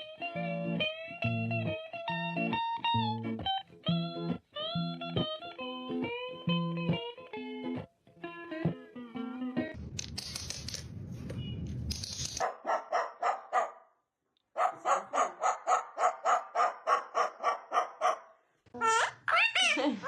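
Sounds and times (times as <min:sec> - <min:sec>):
dog yapping barks: 0:12.4 - 0:13.9, 0:14.6 - 0:18.4.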